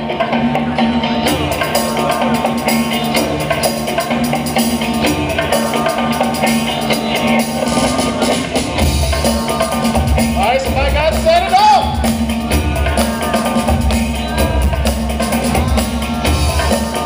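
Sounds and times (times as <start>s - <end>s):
funk music over sound system: 0.0s - 17.0s.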